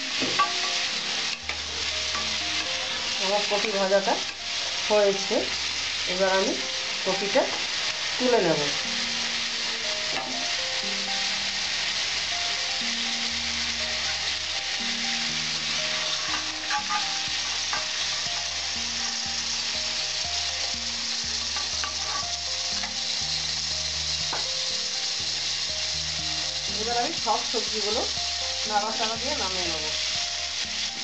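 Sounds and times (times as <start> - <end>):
cauliflower sizzling in hot oil: 0.0 - 31.0
spatula scraping and clicking on pan: 21.5 - 23.0.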